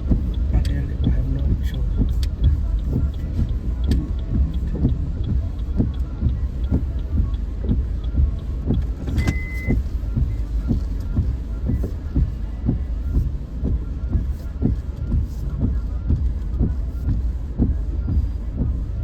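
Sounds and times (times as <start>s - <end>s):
car engine and road rumble: 0.0s - 19.0s
soft regular thumping: 0.0s - 19.0s
short high beep: 9.1s - 9.8s.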